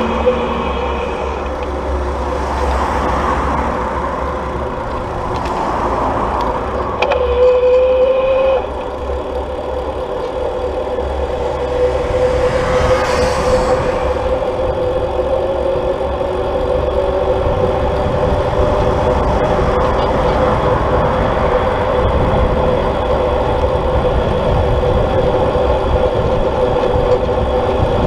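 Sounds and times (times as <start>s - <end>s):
electric bike motor whining: 7.0s - 28.0s
low rumble: 8.6s - 28.0s.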